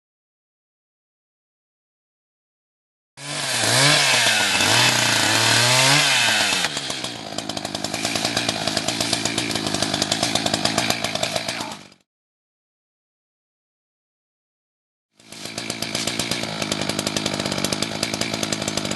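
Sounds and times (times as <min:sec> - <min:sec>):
chainsaw cutting wood: 0:03.2 - 0:12.1, 0:15.2 - 0:18.9.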